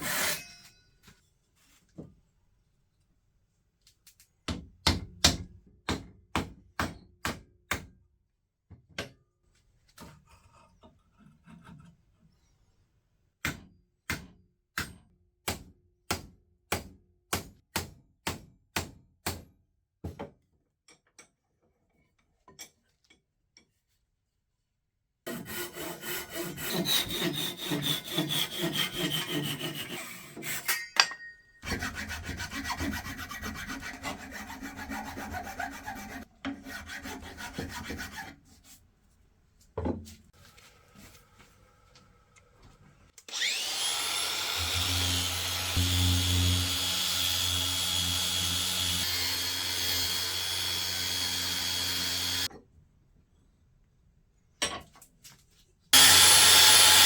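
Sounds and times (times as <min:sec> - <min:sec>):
hand tool strokes on wood: 0:25.4 - 0:30.8.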